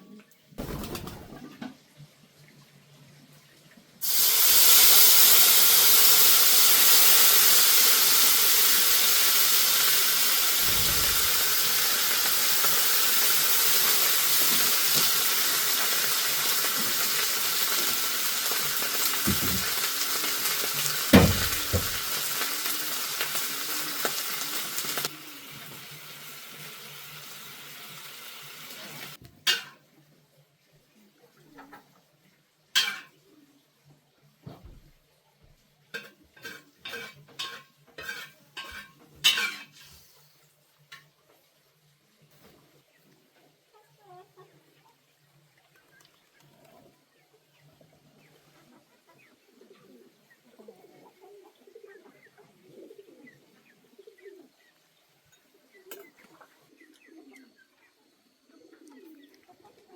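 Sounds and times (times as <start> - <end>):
food sizzling in hot oil: 4.0 - 29.7.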